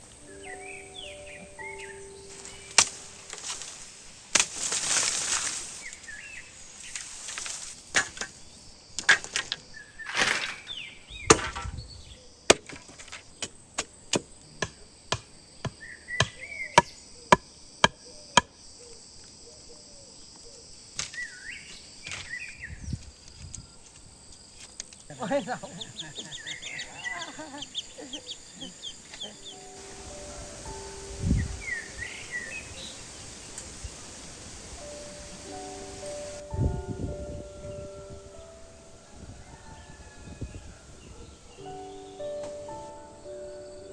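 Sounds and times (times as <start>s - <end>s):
birds chirping: 0.0s - 14.7s, 24.9s - 43.9s
insects buzzing: 0.0s - 43.9s
rustling swishes: 2.0s - 8.4s
wood being chopped: 2.7s - 5.3s, 7.0s - 8.4s, 9.0s - 11.8s, 12.5s - 18.5s, 21.0s - 21.3s.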